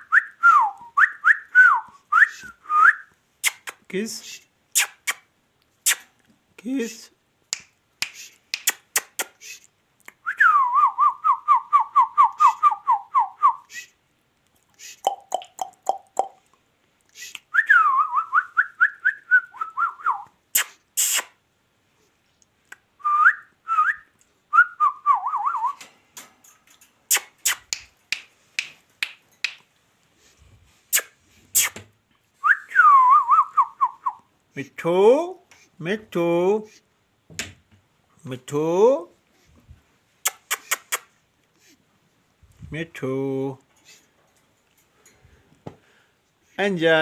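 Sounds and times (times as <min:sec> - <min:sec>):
sharp clicks and smacks: 0:03.4 - 0:03.9, 0:04.8 - 0:06.3, 0:07.5 - 0:09.4, 0:20.6 - 0:21.3, 0:27.1 - 0:29.7, 0:40.2 - 0:41.1.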